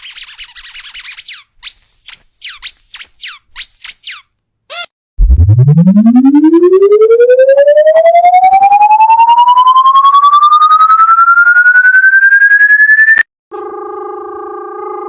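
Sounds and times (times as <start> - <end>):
pulsing electronic tone rising: 5.2 - 13.2.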